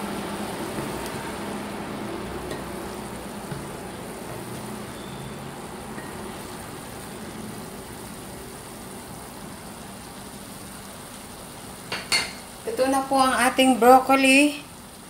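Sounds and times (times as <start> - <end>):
food sizzling in a frying pan: 0.0 - 15.0
wooden spatula stirring: 0.3 - 8.0.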